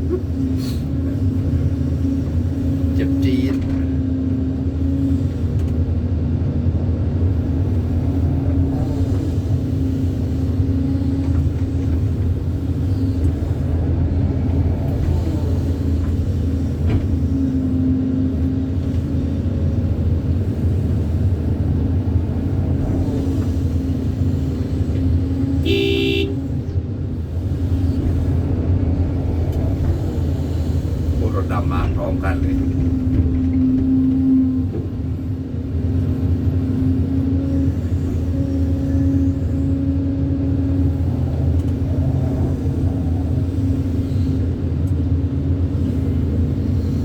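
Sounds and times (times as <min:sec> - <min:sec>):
excavator diesel engine running: 0:00.0 - 0:47.0
horn toot: 0:25.6 - 0:26.4.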